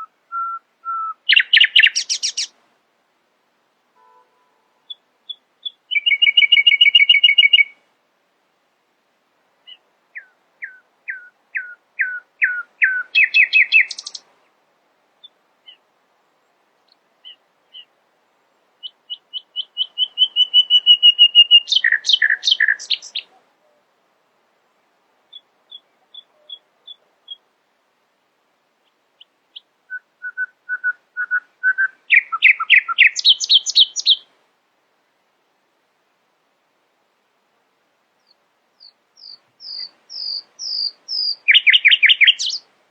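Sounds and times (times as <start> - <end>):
nightingale singing: 0.0 - 2.6, 4.8 - 7.8, 9.6 - 14.6, 15.2 - 23.8, 24.8 - 27.6, 28.8 - 34.3, 38.2 - 42.7.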